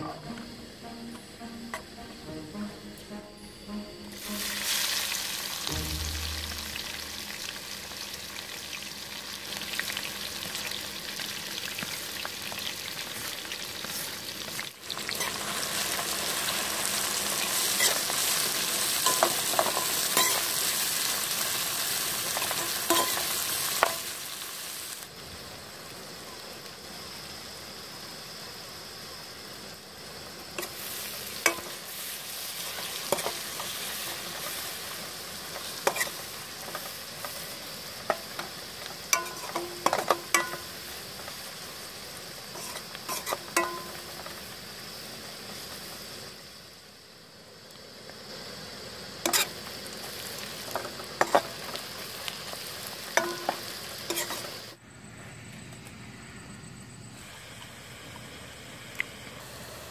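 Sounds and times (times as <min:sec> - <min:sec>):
onions sizzling in hot oil: 0:04.1 - 0:54.8
ladle scraping a pan: 0:42.6 - 0:43.4.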